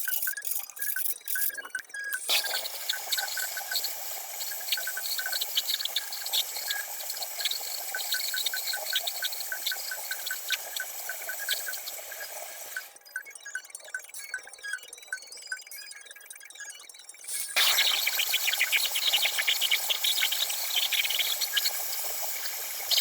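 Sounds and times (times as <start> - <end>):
steady hiss: 2.3 - 12.8, 17.4 - 23.0.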